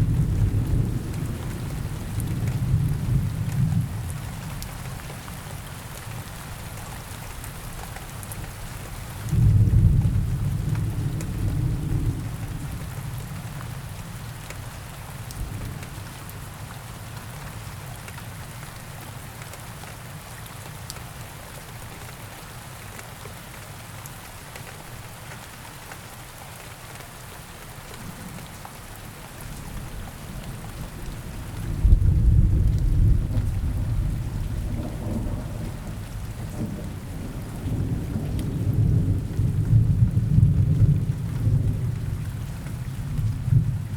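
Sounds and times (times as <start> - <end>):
low rumble of thunder: 0.0 - 5.0, 9.3 - 14.3, 15.3 - 16.6, 29.5 - 43.9
steady rain falling: 0.0 - 43.9.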